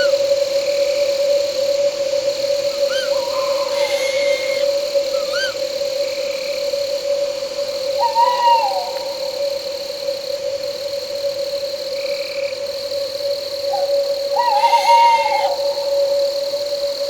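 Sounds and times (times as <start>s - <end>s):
crickets and night insects trilling: 0.0s - 17.0s
low drone: 0.8s - 5.3s
owl hooting: 2.0s - 5.8s, 7.8s - 9.8s, 13.7s - 16.4s.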